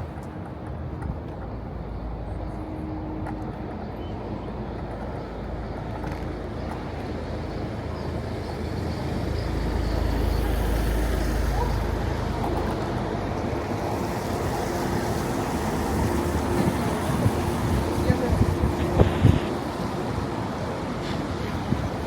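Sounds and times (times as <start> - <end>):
street traffic hum: 0.0 - 22.0.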